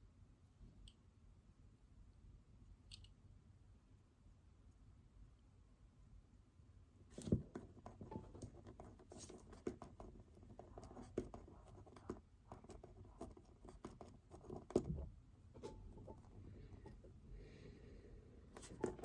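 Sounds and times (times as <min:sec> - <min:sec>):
pen writing on paper: 0:07.5 - 0:16.3.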